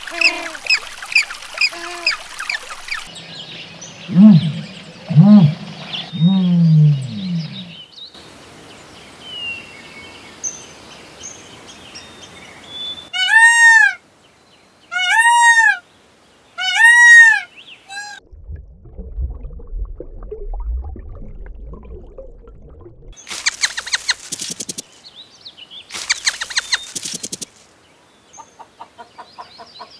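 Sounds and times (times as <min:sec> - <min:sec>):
peacock calling: 0:00.0 - 0:03.1, 0:13.1 - 0:14.0, 0:14.9 - 0:15.8, 0:16.6 - 0:18.2
low rumbling noise: 0:03.2 - 0:07.8, 0:18.2 - 0:23.2.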